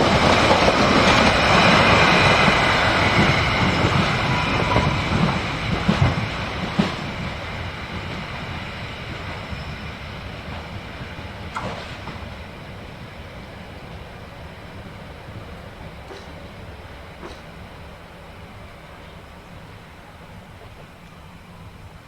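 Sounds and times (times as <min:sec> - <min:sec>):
train wheel screech: 0:00.0 - 0:07.6
train rumble: 0:00.0 - 0:22.0
train wheels knocking over rail joints: 0:16.0 - 0:17.8.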